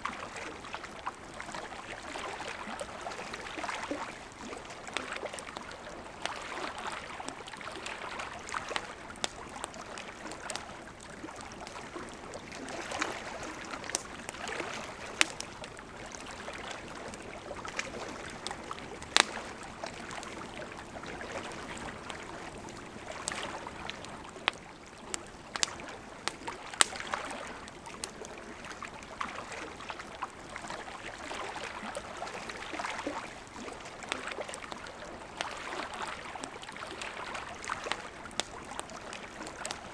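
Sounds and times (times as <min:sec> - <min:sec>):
fire crackles and pops: 0:00.9 - 0:29.2, 0:37.3 - 0:39.9
wood fire burning: 0:03.5 - 0:28.8, 0:37.3 - 0:39.9.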